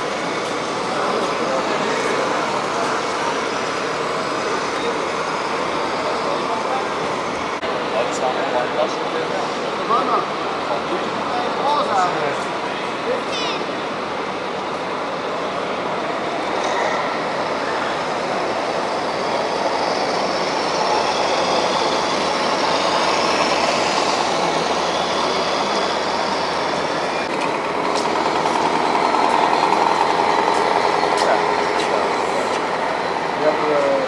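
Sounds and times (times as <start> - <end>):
model trucks rumbling: 17.2 - 34.0.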